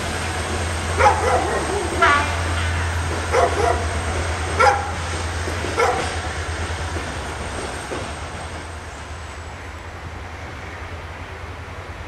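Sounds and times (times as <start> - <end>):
passenger train rumbling: 0.0 - 12.0
dog barking: 1.0 - 1.9, 3.3 - 3.8, 4.6 - 5.0, 5.8 - 6.2.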